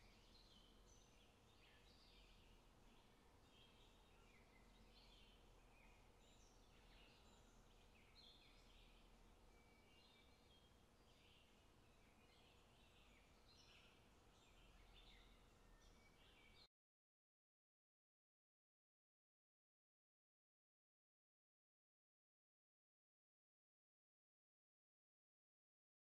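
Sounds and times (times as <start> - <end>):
faint birds chirping: 0.0 - 16.7
steady low hiss: 0.0 - 16.7.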